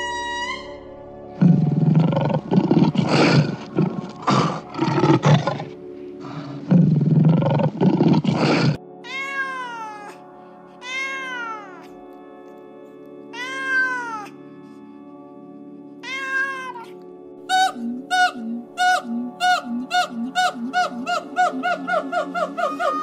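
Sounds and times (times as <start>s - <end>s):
lion roaring: 1.4s - 8.8s
cat meowing: 9.0s - 10.2s, 10.8s - 11.9s, 13.3s - 14.4s, 16.0s - 17.0s.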